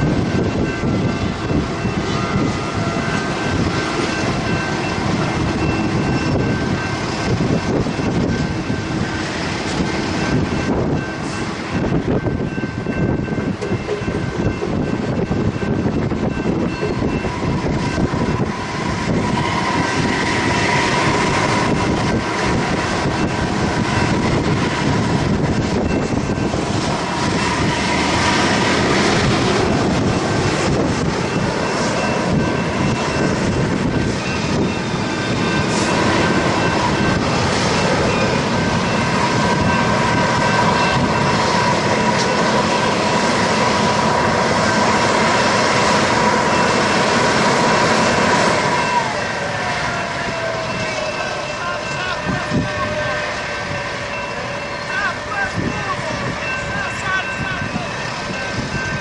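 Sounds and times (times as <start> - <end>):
train wheels rumbling and clattering: 0.0 - 59.0
high ringing tones: 10.1 - 28.1, 29.7 - 43.1, 46.1 - 59.0.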